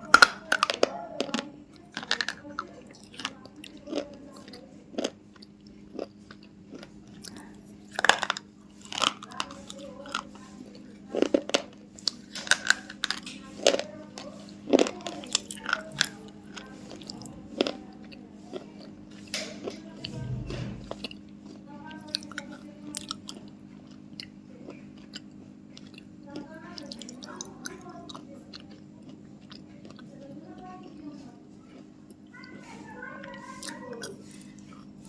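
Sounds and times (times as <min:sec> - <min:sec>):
person chewing crunchy food: 0:00.0 - 0:35.0
steady low hum: 0:00.0 - 0:35.0
swallowing: 0:14.4 - 0:26.2.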